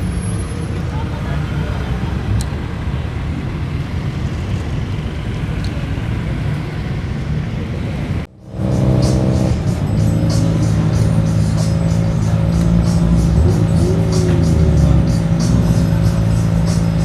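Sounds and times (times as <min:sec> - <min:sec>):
cars driving past: 0:00.0 - 0:17.0
droning engine: 0:00.7 - 0:17.0.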